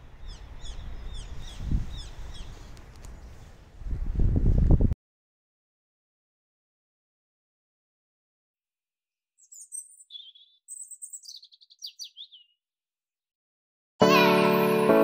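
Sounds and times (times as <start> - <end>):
small songbird chirping: 0.0 - 3.6, 9.4 - 12.6
piano music: 14.0 - 15.0.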